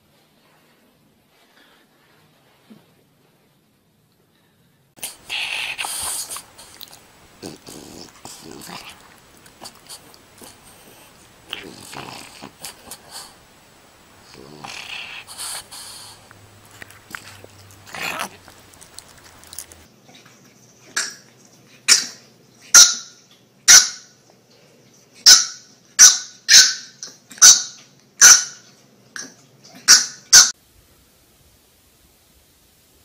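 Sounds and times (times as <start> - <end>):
puppy barking: 25.3 - 28.6.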